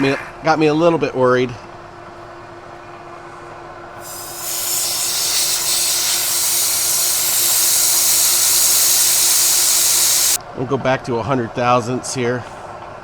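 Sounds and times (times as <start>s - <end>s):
compressed air hissing: 4.0s - 10.4s
milling machine humming: 4.0s - 10.4s.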